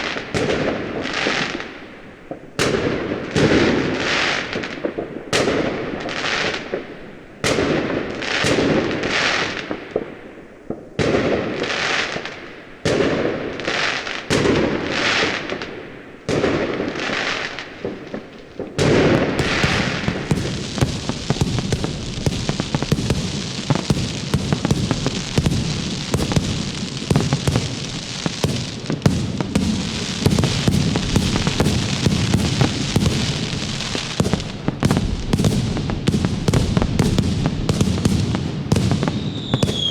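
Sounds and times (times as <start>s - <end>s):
firecrackers rapid popping: 0.0s - 39.9s
fireworks banging and crackling: 0.0s - 39.9s.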